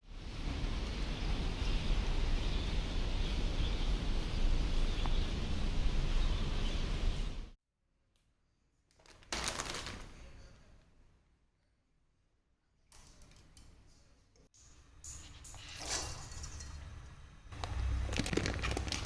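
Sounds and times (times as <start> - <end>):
steady rain: 0.1 - 7.5.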